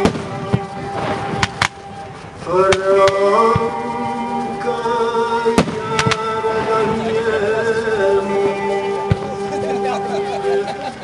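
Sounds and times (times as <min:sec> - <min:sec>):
firework bangs: 0:00.0 - 0:03.7, 0:05.6 - 0:07.3
music with singing: 0:00.0 - 0:11.0.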